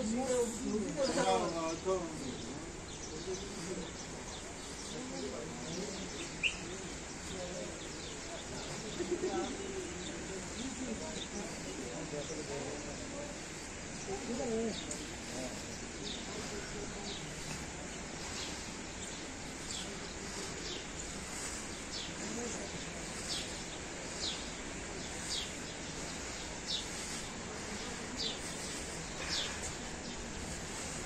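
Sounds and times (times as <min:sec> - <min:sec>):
steady outdoor hiss: 0:00.0 - 0:31.0
bird chirping: 0:05.6 - 0:06.9.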